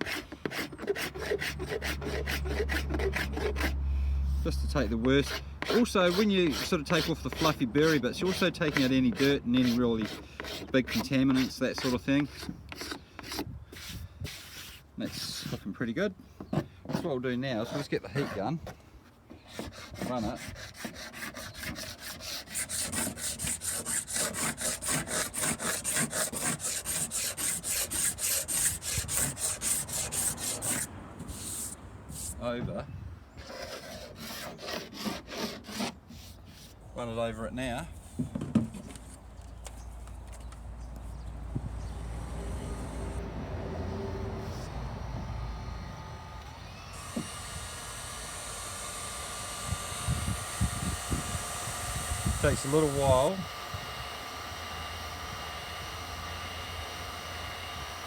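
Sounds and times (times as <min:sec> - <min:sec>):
heat gun fan whine: 0:41.5 - 0:58.0.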